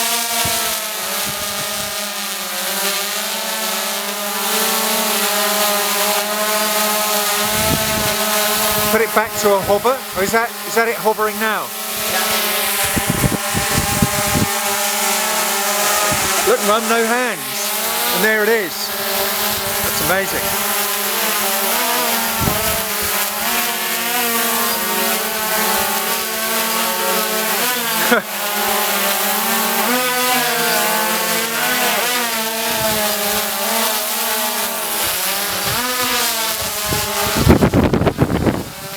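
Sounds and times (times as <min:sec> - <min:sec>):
drone propellers whirring: 0:05.9 - 0:26.1.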